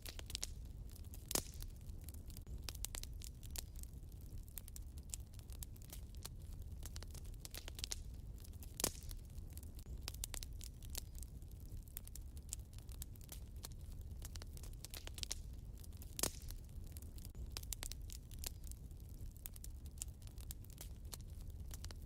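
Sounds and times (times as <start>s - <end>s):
low steady rumble: 0.0s - 22.0s
sharp fire pops: 0.0s - 22.0s
wood fire crackling: 0.0s - 22.0s.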